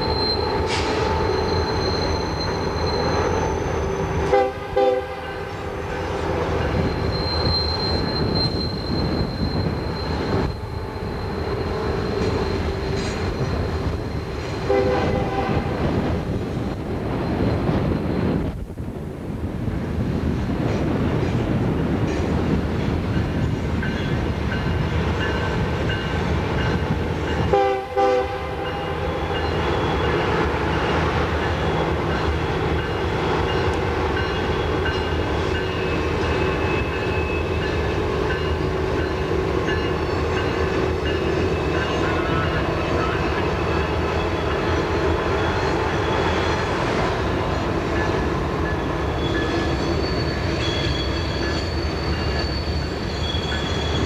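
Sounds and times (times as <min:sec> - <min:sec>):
high wheel squeal: 0:00.0 - 0:04.3, 0:05.5 - 0:14.7, 0:28.6 - 0:54.0
train rumbling on rails: 0:00.0 - 0:54.0
train horn: 0:03.0 - 0:06.9, 0:10.1 - 0:16.2, 0:26.7 - 0:51.4.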